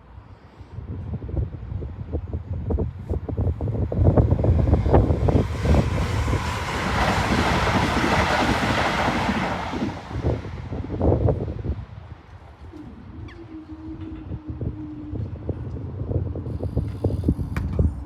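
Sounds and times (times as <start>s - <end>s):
electric train passing: 3.3s - 17.1s.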